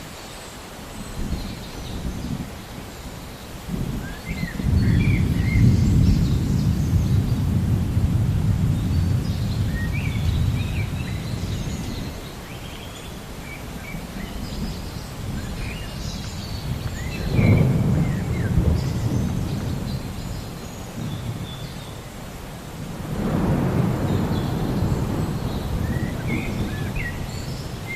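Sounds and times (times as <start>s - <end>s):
rolling thunder: 3.7s - 12.2s, 14.4s - 21.7s, 22.8s - 27.9s
birds chirping: 8.7s - 22.4s, 23.2s - 27.9s.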